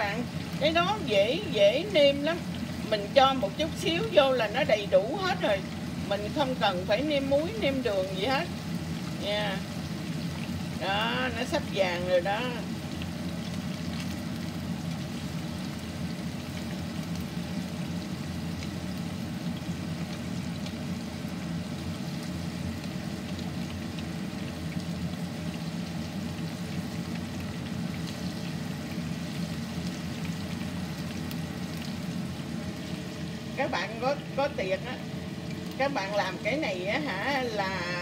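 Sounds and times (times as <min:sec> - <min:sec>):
food deep-frying in oil: 0:00.0 - 0:38.0.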